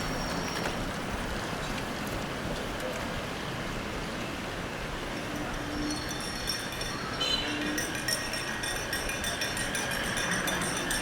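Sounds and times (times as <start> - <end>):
traffic noise: 0.0 - 11.0
faint high clinks: 5.3 - 11.0.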